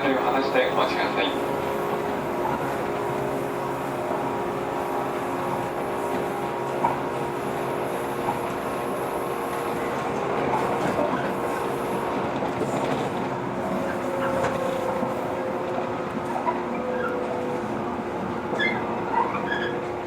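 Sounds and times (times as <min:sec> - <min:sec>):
train running rumble: 0:00.0 - 0:20.0.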